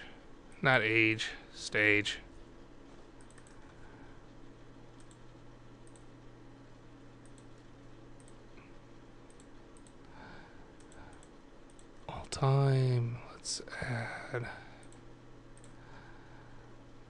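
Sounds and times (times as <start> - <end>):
computer mouse clicking: 3.2 - 3.8, 4.9 - 6.1, 7.2 - 10.1, 10.8 - 12.1, 14.8 - 15.8.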